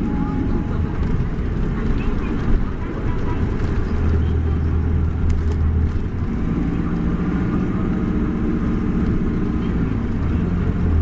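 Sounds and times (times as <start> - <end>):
bus diesel engine humming: 0.0 - 11.0.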